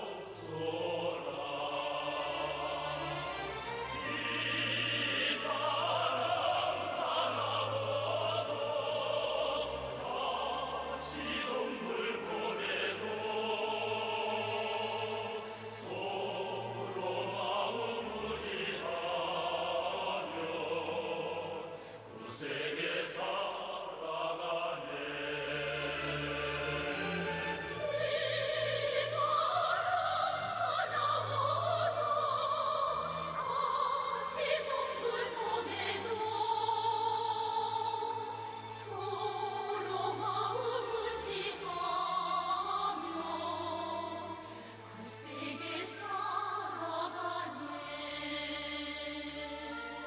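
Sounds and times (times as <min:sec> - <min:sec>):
operatic singing: 0:00.0 - 0:50.0
orchestral accompaniment: 0:02.0 - 0:08.6, 0:25.0 - 0:32.2.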